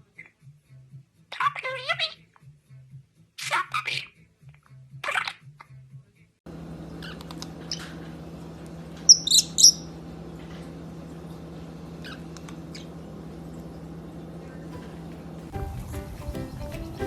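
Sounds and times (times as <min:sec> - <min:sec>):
steady low hum: 0:06.5 - 0:17.0
parrot chirping: 0:06.9 - 0:08.0, 0:09.0 - 0:10.0, 0:12.0 - 0:17.0.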